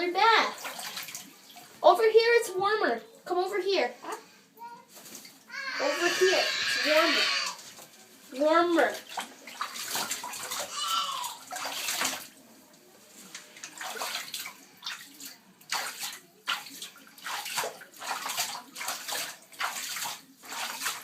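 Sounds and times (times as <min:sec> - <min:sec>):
parrot splashing in water: 0:00.5 - 0:01.8, 0:08.8 - 0:12.4, 0:13.2 - 0:21.0.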